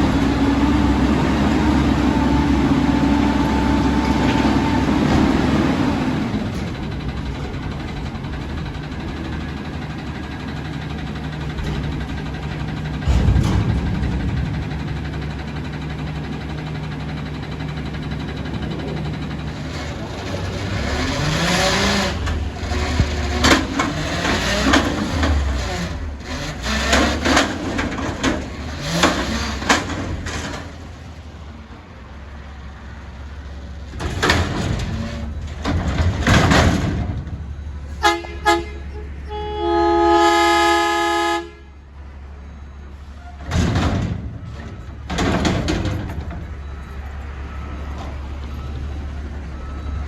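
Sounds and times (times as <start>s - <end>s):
diesel engine running: 0.0s - 50.0s
loud clattering bangs: 10.4s - 18.5s, 34.0s - 37.9s, 43.4s - 46.8s
vehicle horn honking: 38.0s - 41.8s.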